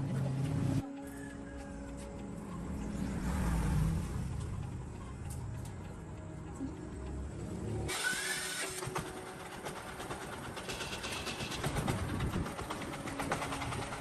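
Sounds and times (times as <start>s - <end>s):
rising whine: 0.6s - 8.8s
rapid mechanical clattering: 7.0s - 14.0s.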